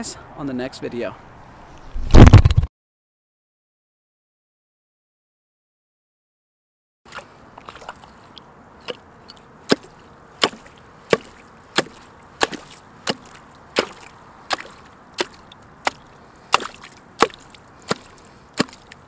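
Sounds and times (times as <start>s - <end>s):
hand tool chopping ice: 9.7s - 19.0s.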